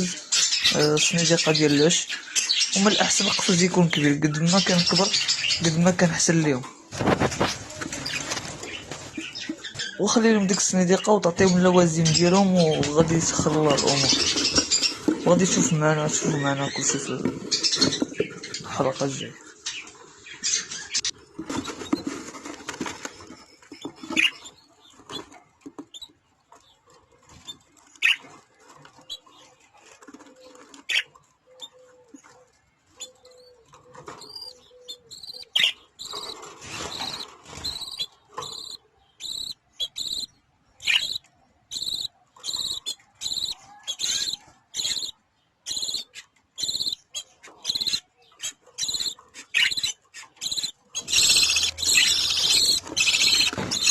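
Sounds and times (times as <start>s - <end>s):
budgerigars chattering and chirping: 0.0s - 22.2s, 23.7s - 53.9s.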